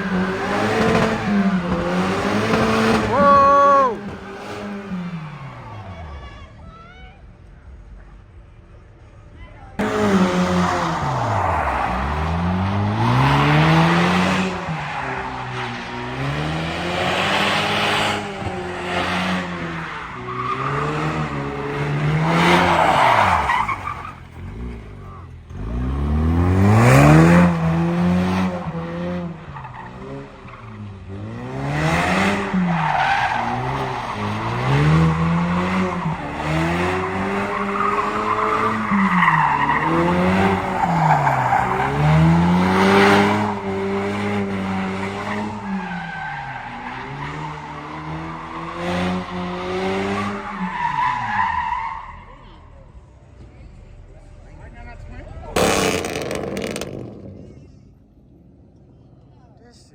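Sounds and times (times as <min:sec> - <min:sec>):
car engine revving: 0:00.0 - 0:06.0, 0:09.7 - 0:59.0
tyres squealing on pavement: 0:14.0 - 0:16.4, 0:18.2 - 0:25.4, 0:32.4 - 0:43.9, 0:45.2 - 0:52.9.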